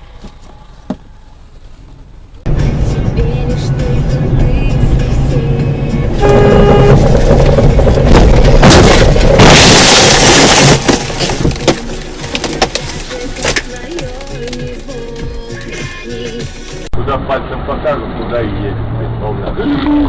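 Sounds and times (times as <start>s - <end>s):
car horn blast: 6.2s - 7.7s
loud crash: 6.2s - 13.8s.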